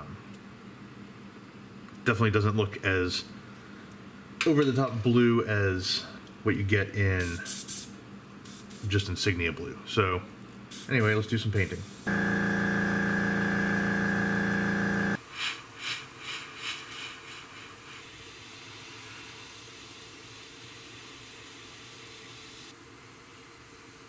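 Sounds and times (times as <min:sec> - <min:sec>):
airbrush air puffs: 0:12.0 - 0:15.2
air compressor motor humming: 0:12.1 - 0:15.2.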